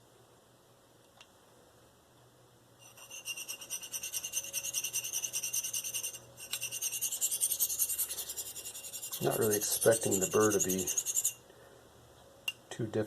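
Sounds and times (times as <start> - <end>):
knife scraping on sharpening stone: 2.8 - 11.4.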